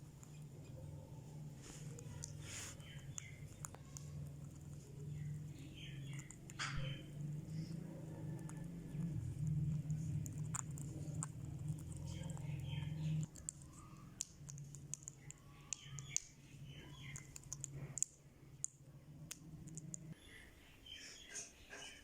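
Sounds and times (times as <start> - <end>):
parakeet chirping: 0.0 - 18.6
low steady hum: 0.0 - 20.9
sharp clicks: 12.0 - 20.2.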